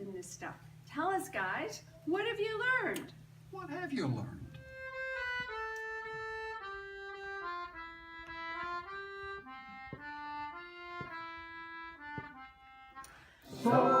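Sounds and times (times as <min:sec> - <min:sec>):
reedy instrumental melody: 0:04.5 - 0:14.0.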